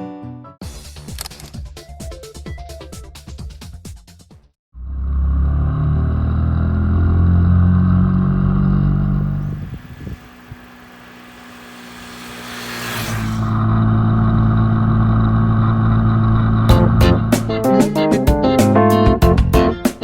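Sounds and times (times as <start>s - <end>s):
motorcycle engine accelerating: 4.8s - 17.6s.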